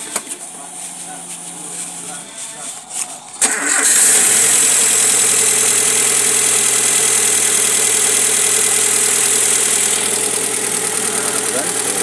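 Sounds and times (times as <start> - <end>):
car engine idling roughly: 3.4 - 12.0.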